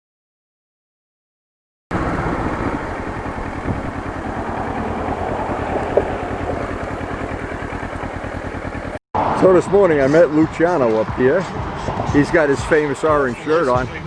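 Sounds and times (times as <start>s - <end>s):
motorcycle engine running: 1.9s - 9.0s.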